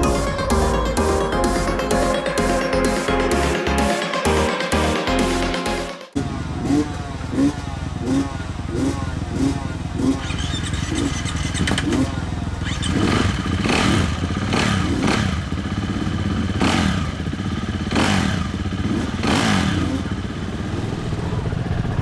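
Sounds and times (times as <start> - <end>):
dirt bike engines revving: 6.2 - 22.0
low engine hum: 20.3 - 22.0.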